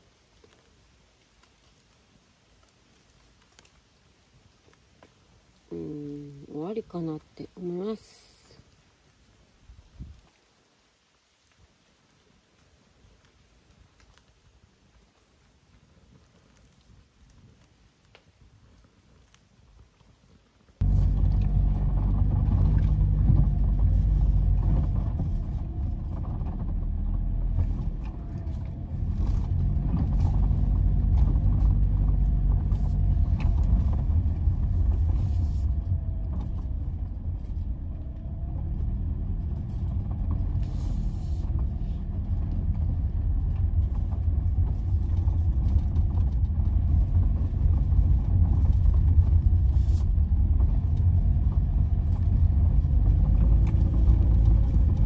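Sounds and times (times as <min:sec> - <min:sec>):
low rumble: 0:20.8 - 0:55.0.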